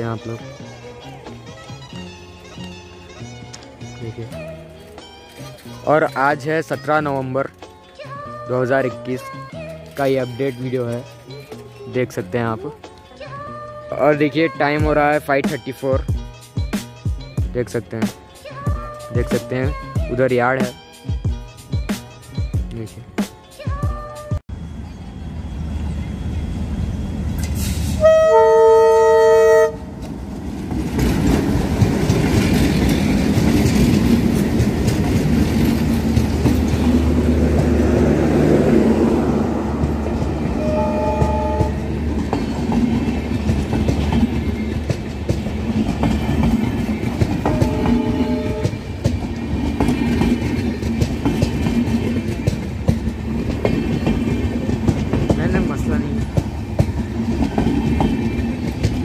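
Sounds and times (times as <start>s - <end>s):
locomotive horn blasts: 27.9s - 29.9s, 40.5s - 42.0s, 47.4s - 49.0s
train wheels clattering on rails: 30.0s - 59.0s.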